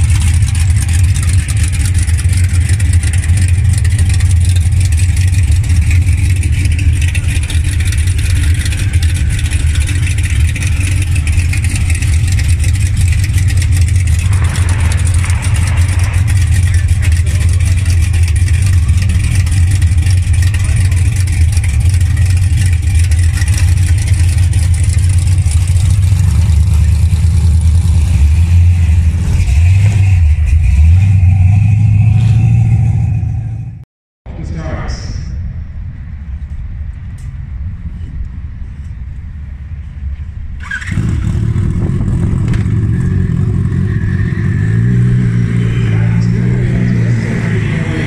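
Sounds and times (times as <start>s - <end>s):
car engine idling: 0.0s - 33.6s
engine revving: 0.0s - 33.8s, 40.6s - 48.0s.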